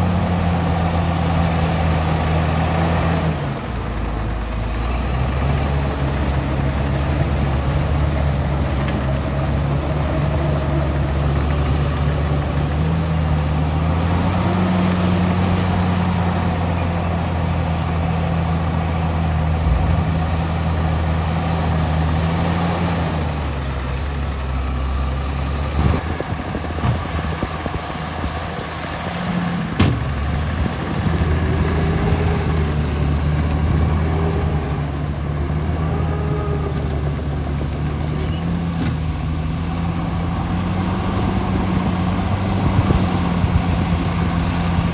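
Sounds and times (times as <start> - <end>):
heavy diesel engine running: 0.0 - 44.9
sharp knocks: 29.8 - 30.1.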